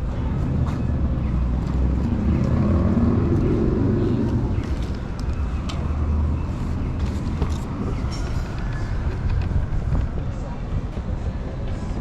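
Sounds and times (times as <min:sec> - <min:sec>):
city street traffic: 0:00.0 - 0:12.0
vehicle passing: 0:01.3 - 0:07.2.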